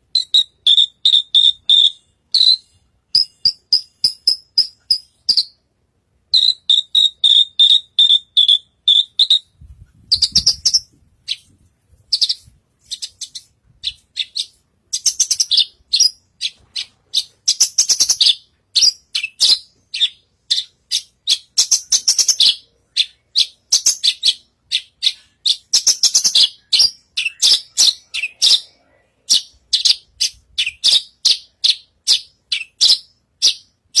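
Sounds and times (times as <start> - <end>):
bird singing chirps and trills: 6.4 - 11.5, 12.1 - 34.0.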